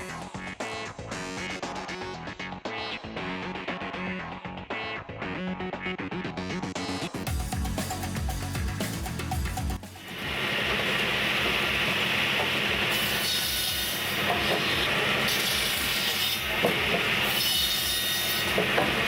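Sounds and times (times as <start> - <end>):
music: 0.0 - 19.0
engine drone: 7.3 - 19.0
saw cutting through wood: 10.1 - 19.0.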